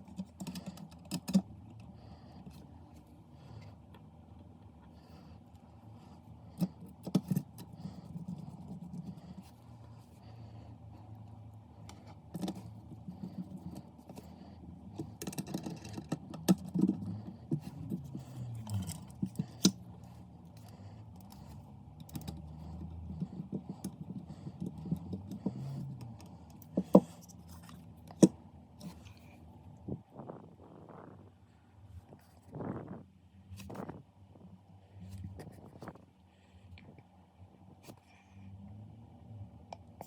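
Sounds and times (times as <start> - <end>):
low background rumble: 0.0 - 40.0
clicks and clatter of small parts: 15.0 - 19.8.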